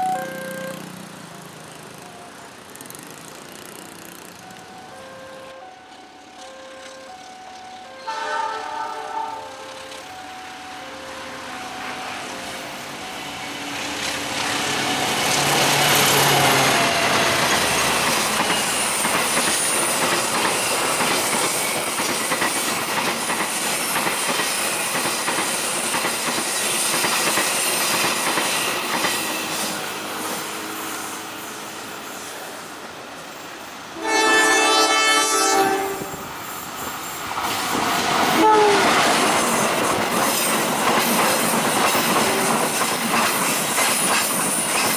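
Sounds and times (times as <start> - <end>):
train horn blast: 0.0 - 1.0, 4.8 - 7.2, 7.9 - 11.6, 34.0 - 36.2, 38.3 - 39.0
train rumbling: 0.0 - 44.9
wheels clacking over rail joints: 11.4 - 34.3, 36.1 - 44.9.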